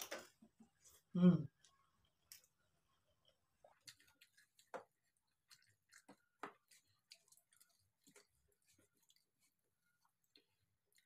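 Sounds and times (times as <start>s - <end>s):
wet chewing and mouth smacks: 3.6s - 11.0s.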